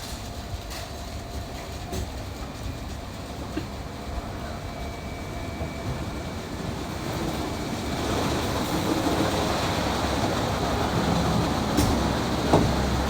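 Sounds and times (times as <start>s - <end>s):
car wash rushing: 6.0s - 13.0s.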